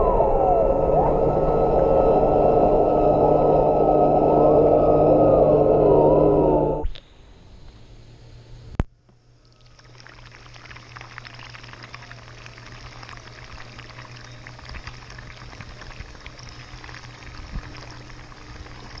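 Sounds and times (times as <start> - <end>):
steady low hum: 0.0 - 9.6, 10.2 - 19.0
pool water gurgling and trickling: 9.4 - 19.0.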